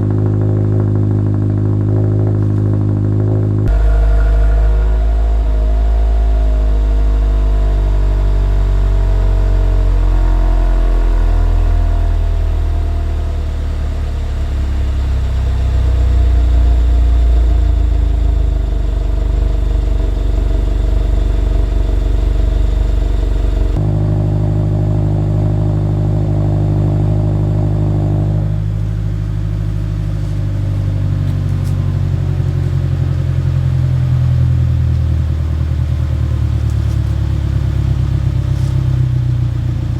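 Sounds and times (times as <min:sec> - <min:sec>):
car engine exhaust note: 0:00.0 - 0:39.9.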